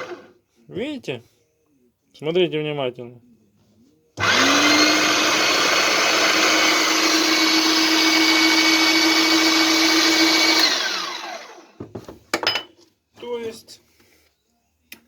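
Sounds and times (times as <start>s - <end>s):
meat grinder motor whining: 0.0s - 0.3s, 4.2s - 11.8s.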